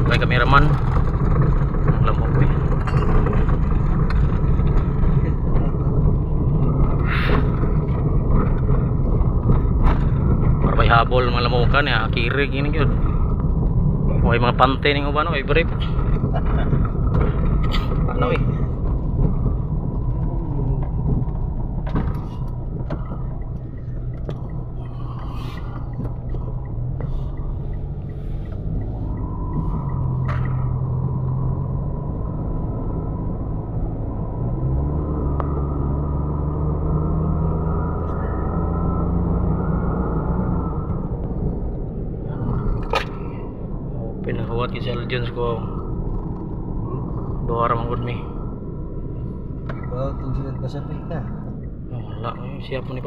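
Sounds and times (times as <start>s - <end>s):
car engine and road noise: 0.0s - 53.0s
faint regular ticking: 20.9s - 30.8s.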